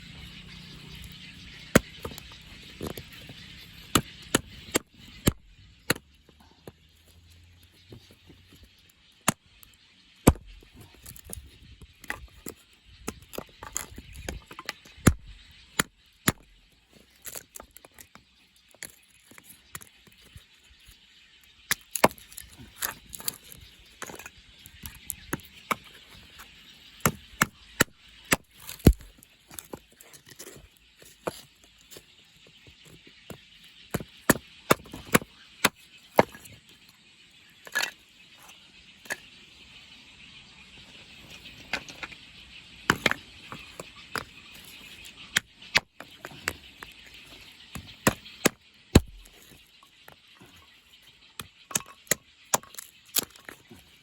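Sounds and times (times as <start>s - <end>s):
axe chopping wood: 10.2s - 11.4s, 15.0s - 16.5s, 27.0s - 29.7s, 33.9s - 36.4s, 42.9s - 43.2s, 47.8s - 49.5s.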